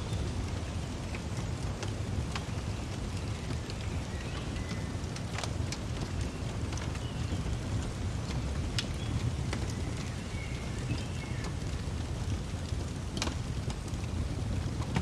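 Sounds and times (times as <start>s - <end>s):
fireplace crackling: 0.1s - 15.0s.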